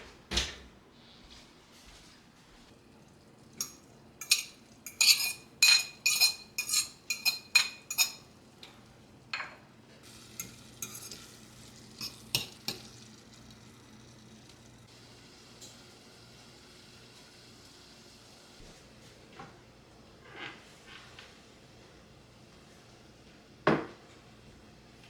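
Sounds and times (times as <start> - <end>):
metal utensil clinking on pot: 3.6 - 8.8, 10.4 - 11.3, 12.0 - 13.0.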